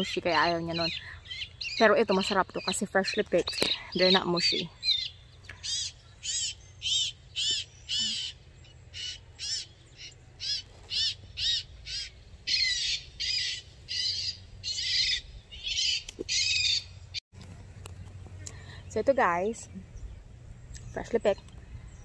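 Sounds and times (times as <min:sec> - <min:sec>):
bird calling: 0:00.0 - 0:17.2.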